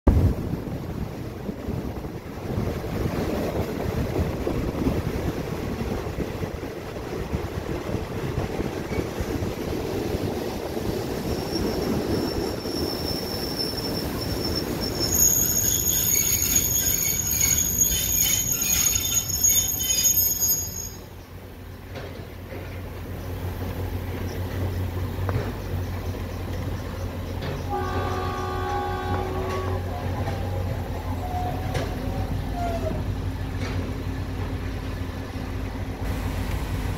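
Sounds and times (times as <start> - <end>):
train rumbling: 0.1 - 36.9
high-pitched brake squealing: 11.2 - 21.3, 27.4 - 33.0.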